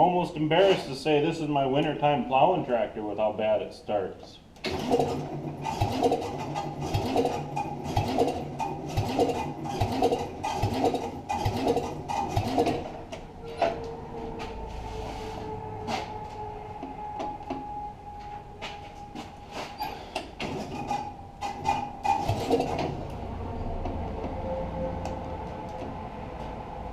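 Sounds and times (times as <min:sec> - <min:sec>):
steady mechanical hum: 0:00.0 - 0:26.9
engine cranking slowly: 0:04.6 - 0:14.0, 0:20.1 - 0:26.9.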